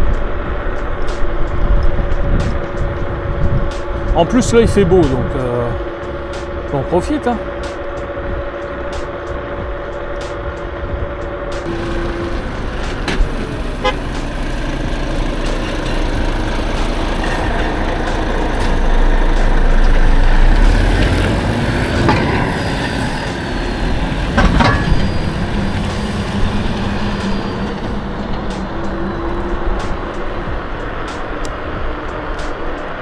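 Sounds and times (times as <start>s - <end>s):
tyre and road noise: 0.0s - 33.0s
wind rumbling on microphone: 0.0s - 33.0s
knocks and rattles: 11.5s - 29.0s.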